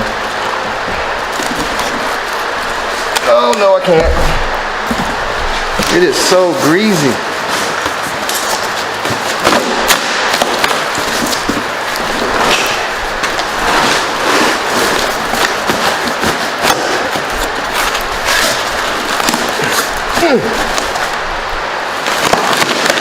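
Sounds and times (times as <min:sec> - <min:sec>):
packing foam crackling: 0:00.0 - 0:23.0
cardboard box tearing: 0:07.7 - 0:21.2.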